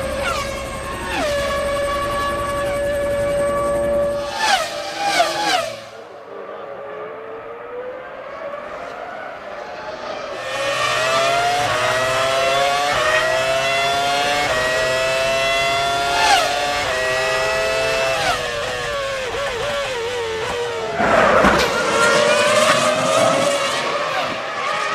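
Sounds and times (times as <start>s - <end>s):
racing car engines accelerating: 0.0s - 24.9s
racing car passing close: 4.1s - 14.6s, 15.7s - 24.9s.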